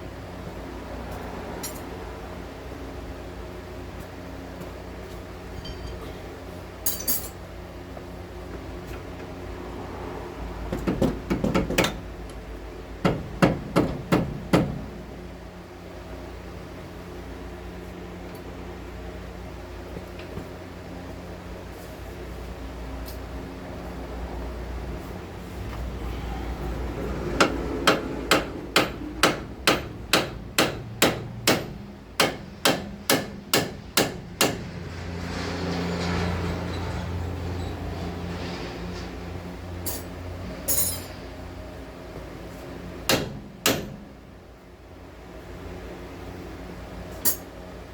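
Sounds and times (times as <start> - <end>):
hammer blows: 25.6 - 34.6.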